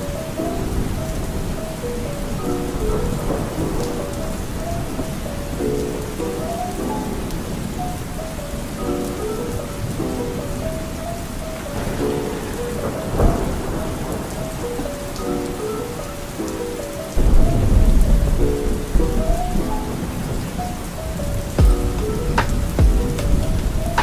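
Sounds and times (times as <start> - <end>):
thunder rumble and cracks: 0.0 - 8.1, 8.8 - 24.0
soft melody: 0.0 - 24.0
steady rain: 0.0 - 24.0.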